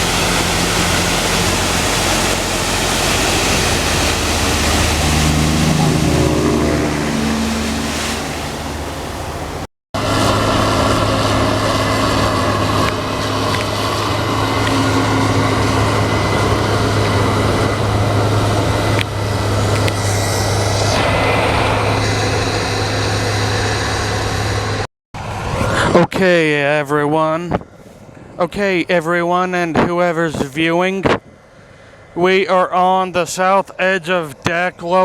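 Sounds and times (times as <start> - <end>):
wind noise: 0.0 - 23.8
diesel farm machinery running: 0.0 - 26.0.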